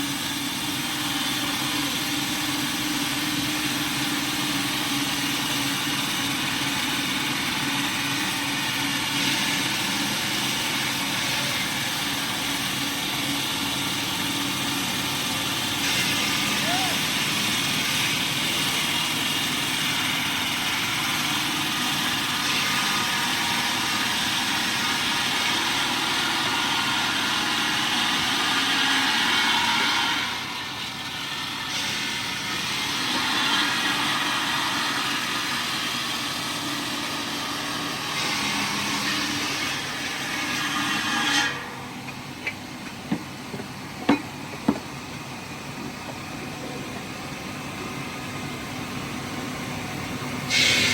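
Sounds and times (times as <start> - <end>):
heavy machinery running: 0.0 - 50.9
sharp knocks: 42.0 - 44.9.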